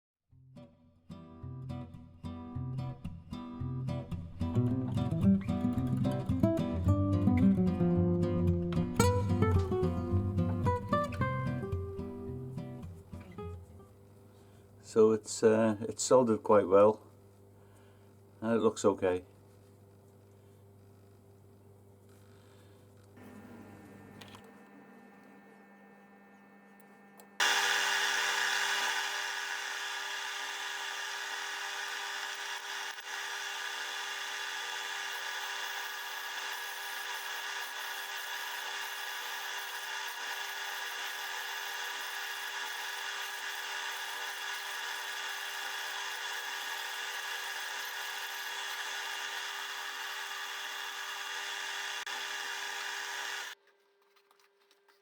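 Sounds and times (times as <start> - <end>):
power tool running: 23.2 - 53.6.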